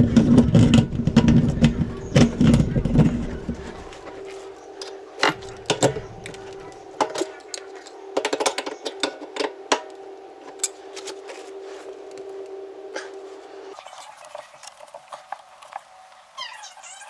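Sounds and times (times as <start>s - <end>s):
small hard objects clattering: 0.0s - 4.4s, 5.2s - 7.3s
steady hum: 0.0s - 13.8s.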